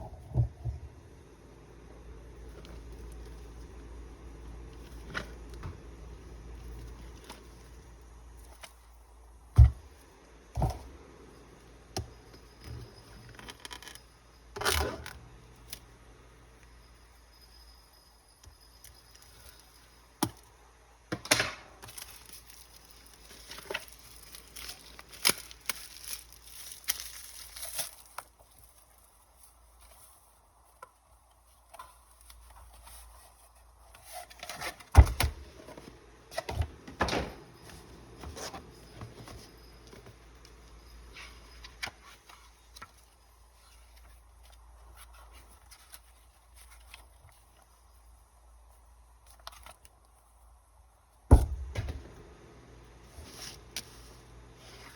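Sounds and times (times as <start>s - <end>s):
packaging rustling: 21.8s - 30.3s.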